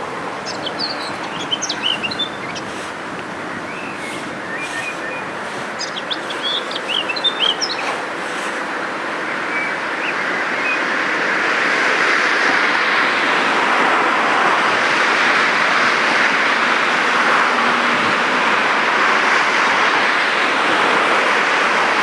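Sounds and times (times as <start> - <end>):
steady rushing noise: 0.0 - 10.0
high bird chirps: 0.4 - 8.7.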